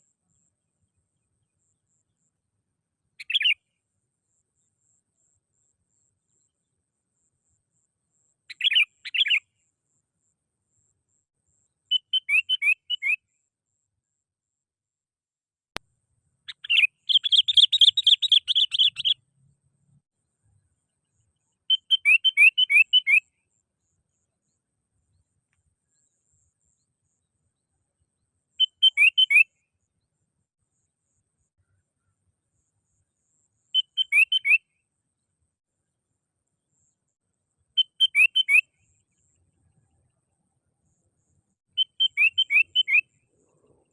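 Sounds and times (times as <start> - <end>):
bulbul chattering song: 8.5 - 9.4, 16.5 - 19.2, 21.5 - 23.3, 28.6 - 29.6, 33.8 - 34.7, 37.8 - 39.2, 40.9 - 43.9.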